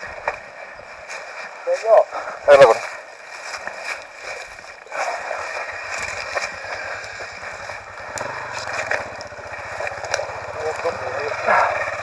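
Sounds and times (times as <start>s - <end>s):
rustling and scuffing: 0.0s - 7.9s
motorcycle engine idling: 4.4s - 12.0s.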